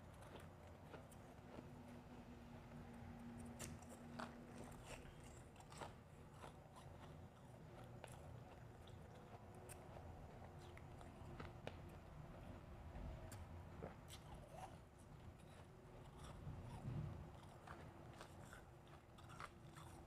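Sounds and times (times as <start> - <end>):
ice being chewed: 3.4 - 12.1, 13.8 - 20.0.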